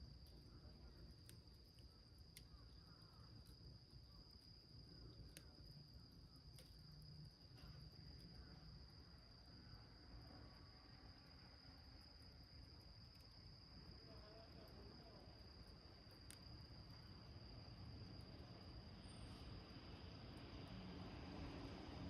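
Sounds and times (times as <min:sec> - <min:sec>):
crickets trilling: 0:00.0 - 0:22.0
wood fire crackling clicks: 0:00.1 - 0:03.6, 0:05.1 - 0:05.7, 0:06.4 - 0:08.3, 0:16.0 - 0:17.1.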